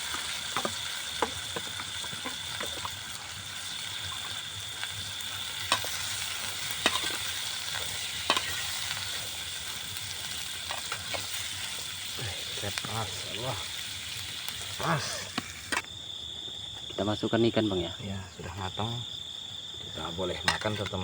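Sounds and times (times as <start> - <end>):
cabbage sizzling in oil: 0.0 - 16.0.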